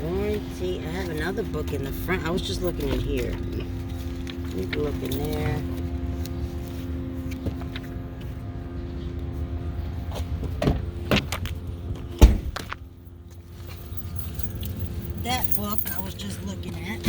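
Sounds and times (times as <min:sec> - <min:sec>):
steady low hum: 0:00.0 - 0:17.0
car door shutting: 0:10.5 - 0:11.4, 0:12.2 - 0:12.8.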